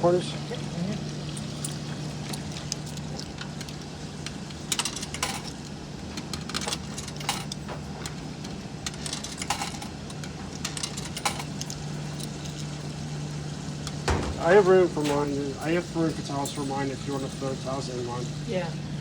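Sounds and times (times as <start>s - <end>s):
coins clinking into coin slot: 4.6s - 5.6s, 6.2s - 8.2s, 8.8s - 12.8s, 13.9s - 17.6s
steady low hum: 10.4s - 19.0s.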